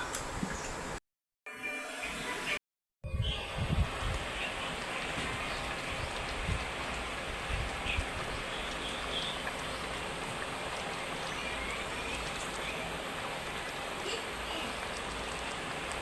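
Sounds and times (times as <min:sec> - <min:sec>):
fish sizzling in hot oil: 0:03.3 - 0:16.0.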